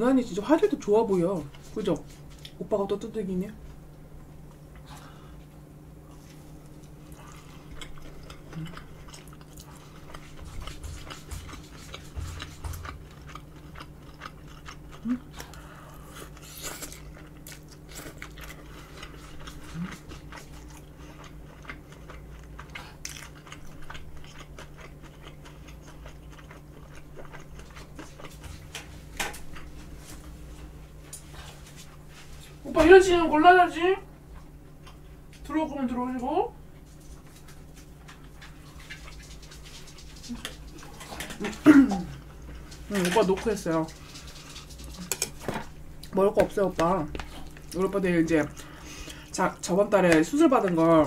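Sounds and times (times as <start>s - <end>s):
faint low hum: 0.0s - 51.0s
person chewing crispy food: 4.5s - 32.6s, 36.7s - 49.7s.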